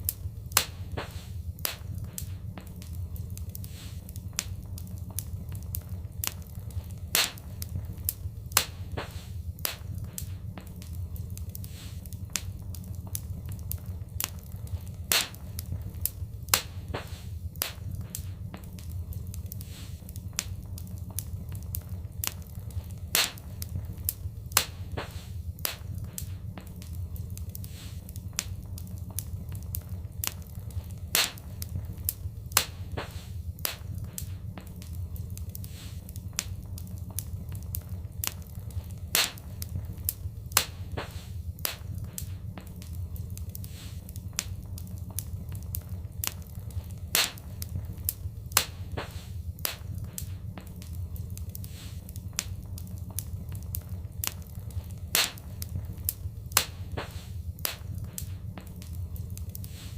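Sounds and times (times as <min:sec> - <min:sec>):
low rumble of flames: 0:00.0 - 0:59.9
wood fire crackling: 0:00.0 - 0:59.9
loud fire pop: 0:07.1 - 0:07.4, 0:15.1 - 0:15.5, 0:31.1 - 0:31.4, 0:39.1 - 0:39.4, 0:40.6 - 0:41.9, 0:47.1 - 0:47.4, 0:48.6 - 0:49.9, 0:55.1 - 0:55.5, 0:56.6 - 0:57.9.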